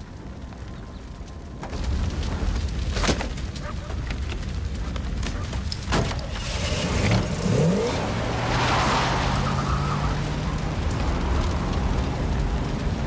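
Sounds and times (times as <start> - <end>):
tyres spinning on dirt: 0.0 - 13.0
car engine revving: 6.4 - 13.0.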